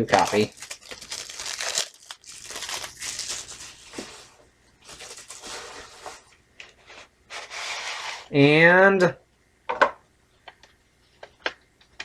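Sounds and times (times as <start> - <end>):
plastic shrink wrap crinkling: 0.0 - 6.4.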